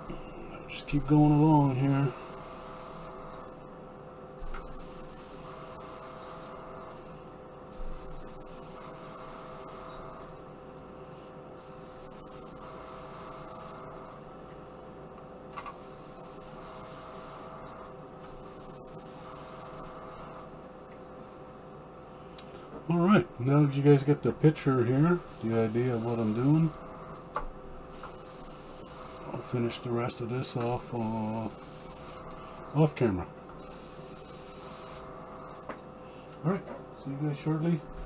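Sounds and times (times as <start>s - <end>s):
steady hum: 0.0s - 38.0s
airbrush spraying hiss: 31.0s - 32.2s, 33.6s - 35.0s.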